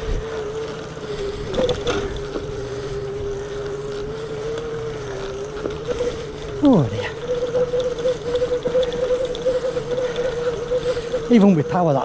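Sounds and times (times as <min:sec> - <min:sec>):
wind noise on microphone: 0:00.0 - 0:03.5
electric motor whining: 0:00.0 - 0:12.0.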